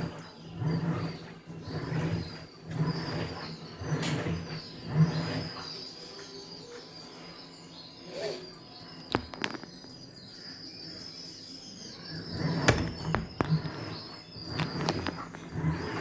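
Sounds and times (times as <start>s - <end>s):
washing machine humming: 0.0s - 10.4s, 11.0s - 16.0s
sharp knocks and clicks: 12.7s - 15.5s.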